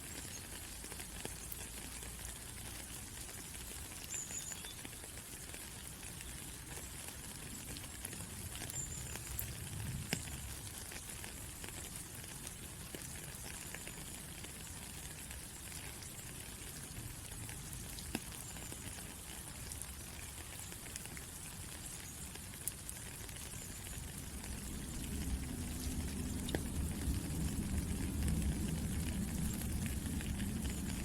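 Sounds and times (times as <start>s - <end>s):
steady rain falling: 0.0s - 31.0s
low rumble: 24.2s - 31.0s.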